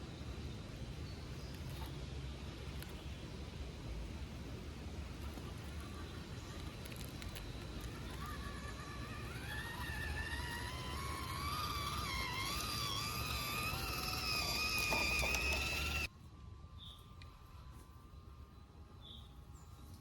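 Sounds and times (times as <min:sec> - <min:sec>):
electric motor and gearbox whining: 0:06.6 - 0:16.1.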